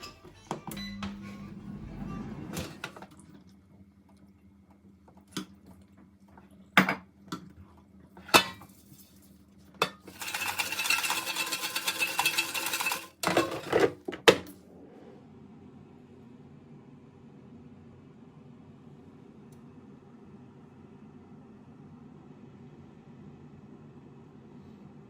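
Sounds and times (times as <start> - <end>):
rushing scraping noise: 1.1 - 3.1
dishes and utensils clinking: 9.8 - 14.0.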